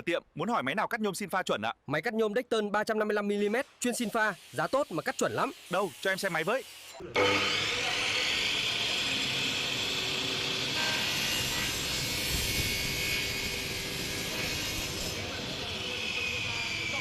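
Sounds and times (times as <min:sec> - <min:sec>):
saw cutting aluminium: 0:04.0 - 0:17.0.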